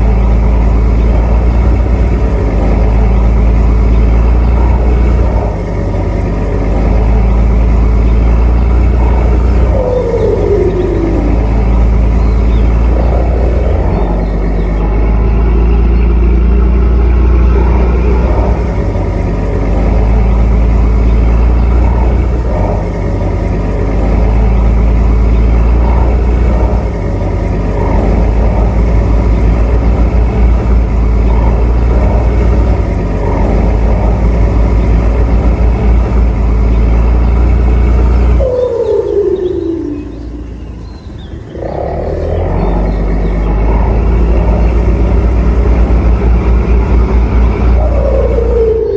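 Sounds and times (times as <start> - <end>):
boat diesel engine rumbling: 0.0 - 48.9.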